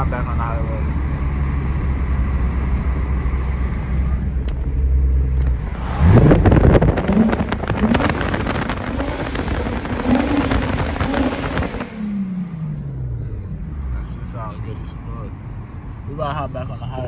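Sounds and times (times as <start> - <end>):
car exhaust droning and revving: 0.1 - 14.4
raspy exhaust crackle: 5.4 - 12.3.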